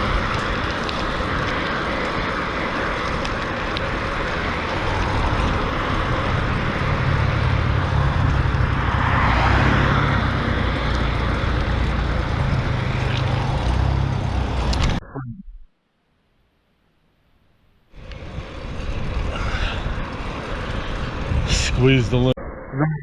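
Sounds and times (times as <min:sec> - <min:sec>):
wind buffeting microphone: 0:00.0 - 0:13.4, 0:18.1 - 0:22.3
road noise: 0:00.0 - 0:15.0, 0:15.7 - 0:22.9.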